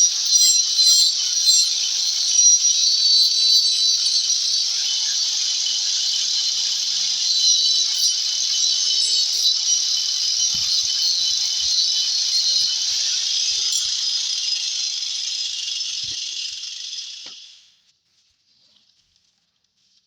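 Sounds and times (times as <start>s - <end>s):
cicada buzzing: 0.0s - 17.5s.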